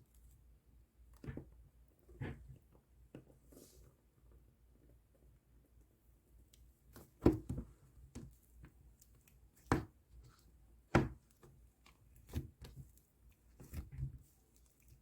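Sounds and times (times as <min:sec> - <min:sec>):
hands squishing slime: 0:06.9 - 0:15.0.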